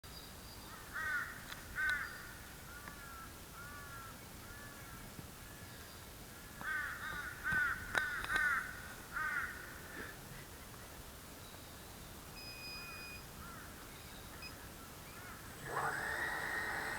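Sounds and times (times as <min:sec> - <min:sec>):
bird harsh calls: 0:13.4 - 0:16.9.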